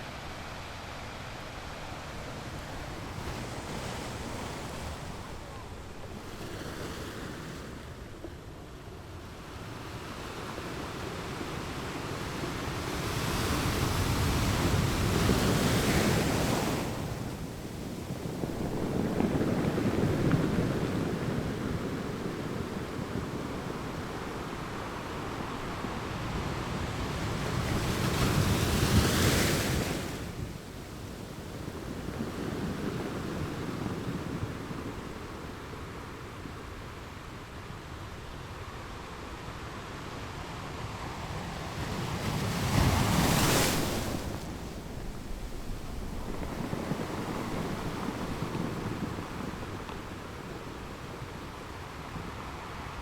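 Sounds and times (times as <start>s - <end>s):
large waves crashing: 9.3s - 53.0s
ocean waves breaking on rocks: 10.0s - 36.8s, 41.2s - 53.0s.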